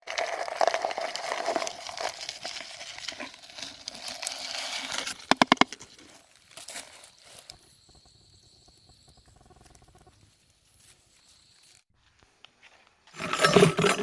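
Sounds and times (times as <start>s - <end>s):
rustling and crinkling: 0.1s - 7.7s.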